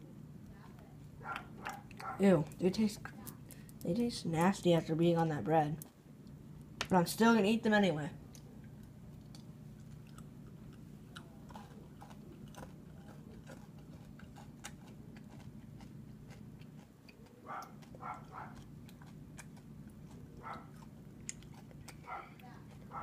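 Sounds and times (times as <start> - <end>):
steady low hum: 0.0 - 23.0
candy crunching: 8.2 - 23.0.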